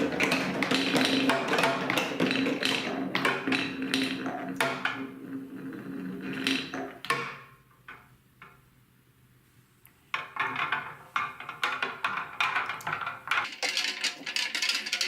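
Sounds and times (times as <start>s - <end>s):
marbles clattering down plastic track: 0.0s - 7.4s, 10.3s - 15.0s.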